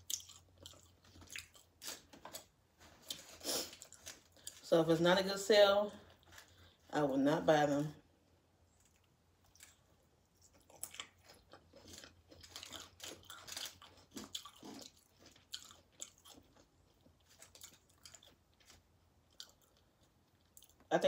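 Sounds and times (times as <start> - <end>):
crunching tortilla chips: 0.0 - 4.7, 8.8 - 20.9.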